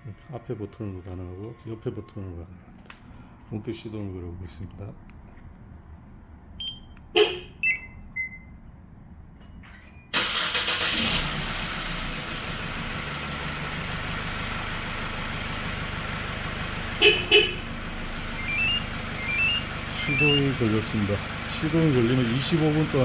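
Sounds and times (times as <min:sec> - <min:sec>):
short electronic beeps: 0:06.6 - 0:07.0, 0:07.6 - 0:08.5, 0:18.4 - 0:20.5
engine starter cranking: 0:10.1 - 0:15.7, 0:17.9 - 0:23.0
diesel engine idling: 0:10.2 - 0:23.0.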